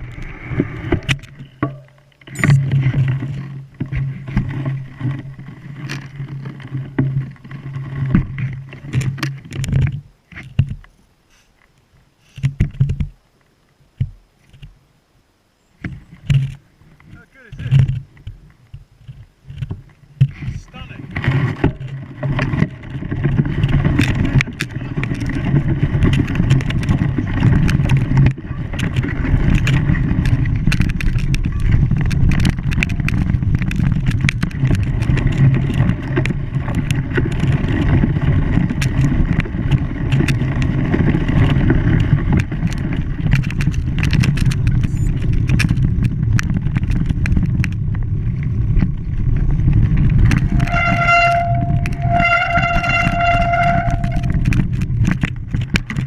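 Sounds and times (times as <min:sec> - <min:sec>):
knocks and clicks: 0:00.0 - 0:04.9
engine humming: 0:20.1 - 0:56.0.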